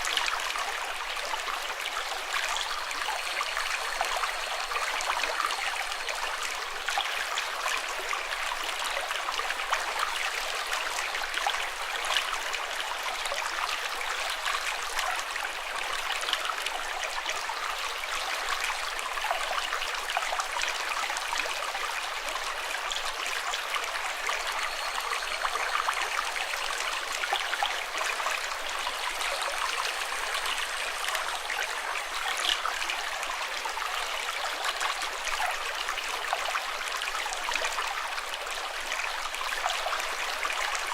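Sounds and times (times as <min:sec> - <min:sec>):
water trickling and splashing: 0:00.0 - 0:40.9.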